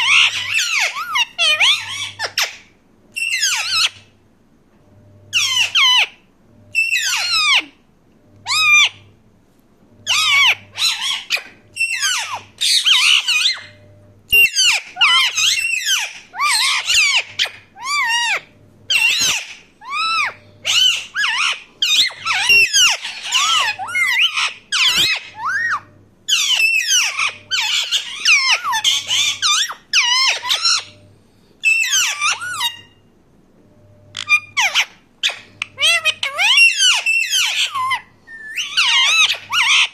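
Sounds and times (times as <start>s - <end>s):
parakeet shrill calls: 0.0s - 2.6s, 3.2s - 4.0s, 5.3s - 6.2s, 6.8s - 7.7s, 8.4s - 9.0s, 10.0s - 31.0s, 31.6s - 33.0s, 34.2s - 39.9s.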